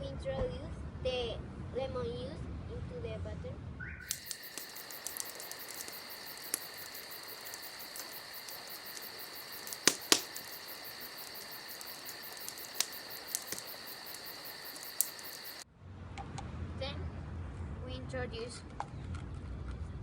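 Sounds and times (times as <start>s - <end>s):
crickets chirring: 4.1s - 15.6s
sharp clicks: 4.1s - 15.6s.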